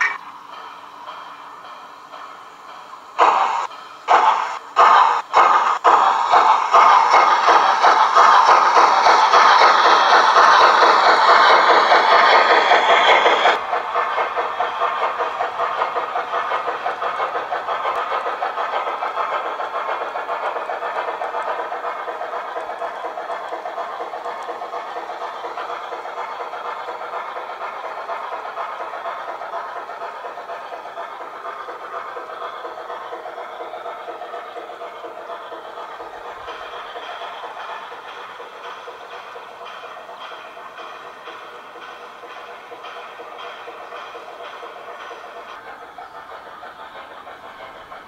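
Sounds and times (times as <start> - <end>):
model train ticking on track: 0.0 - 48.0.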